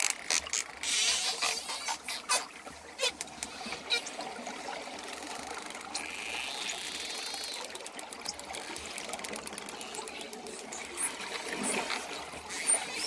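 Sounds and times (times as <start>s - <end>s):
dolphin chirps: 0.9s - 4.2s
dolphin clicks: 5.2s - 11.2s.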